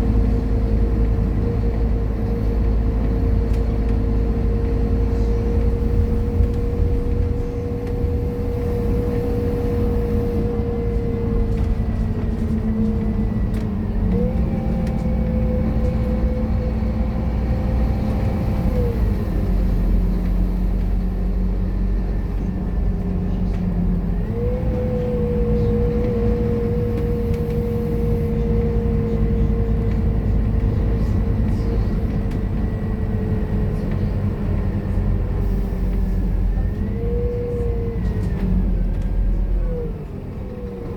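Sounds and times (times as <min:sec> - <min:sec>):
bus diesel engine whine: 0:00.0 - 0:40.9.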